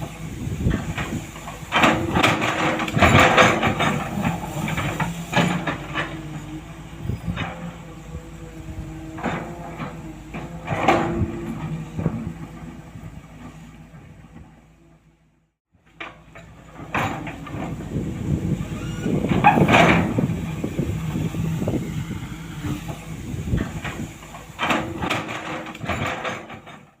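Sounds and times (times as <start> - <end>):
truck engine humming: 0.0 - 26.2
metal knocks and clatter: 0.6 - 7.9, 15.9 - 21.8, 22.7 - 27.0.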